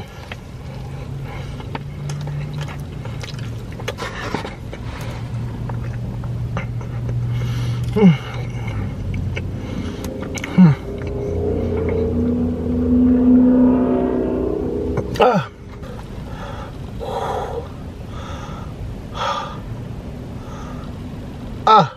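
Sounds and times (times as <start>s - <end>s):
car engine hum: 0.0s - 21.9s
person chewing with mouth smacks: 1.6s - 6.4s, 7.8s - 12.0s.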